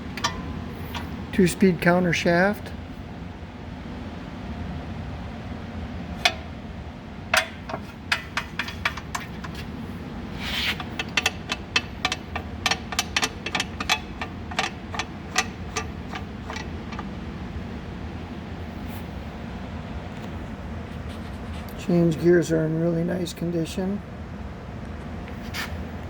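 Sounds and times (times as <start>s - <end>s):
steady low hum: 0.0s - 26.0s
light metal clicks and knocks: 0.1s - 1.3s, 6.2s - 6.6s, 7.3s - 9.8s, 10.8s - 17.2s.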